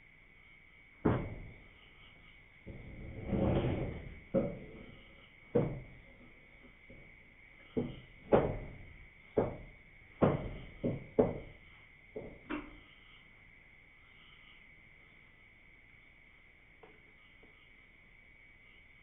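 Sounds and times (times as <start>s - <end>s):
high-pitched insect drone: 0.0s - 3.2s, 8.8s - 19.0s
sharp knocks: 1.0s - 1.6s, 5.5s - 6.0s, 7.7s - 11.6s.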